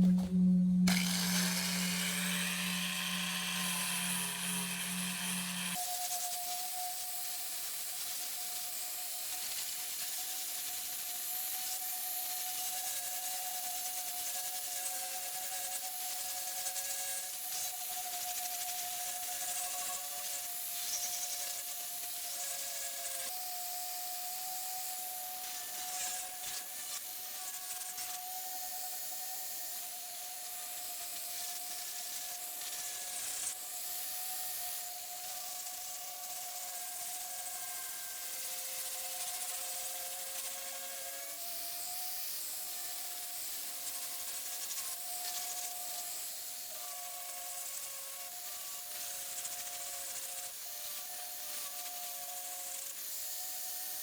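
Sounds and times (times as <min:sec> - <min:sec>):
power grinder motor whine: 0:00.0 - 0:06.2.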